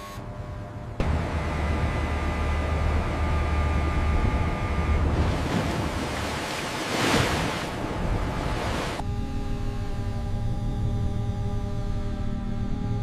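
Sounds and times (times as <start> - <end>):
faint steady tones: 0.0 - 6.4
machinery hum: 0.0 - 13.0
rushing surf-like noise: 1.0 - 9.0.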